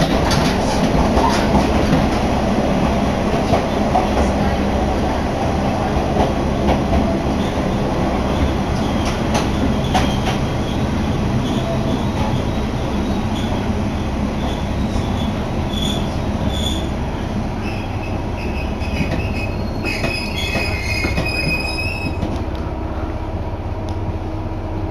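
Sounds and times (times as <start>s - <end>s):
railcar running rumble: 0.0s - 24.9s
brake and wheel squeal: 14.4s - 17.0s, 17.6s - 22.3s.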